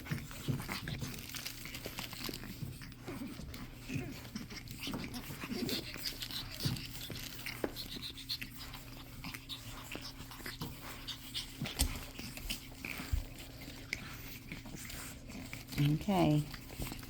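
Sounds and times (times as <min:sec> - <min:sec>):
paws clicking and scratching: 0:00.0 - 0:17.0
puppies panting: 0:00.0 - 0:17.0
faint puppy squeaks: 0:03.0 - 0:12.9.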